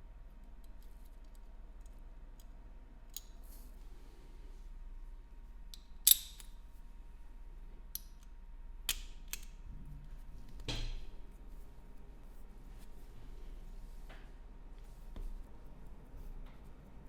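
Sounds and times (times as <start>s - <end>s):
metal tools clicking: 5.7s - 6.5s.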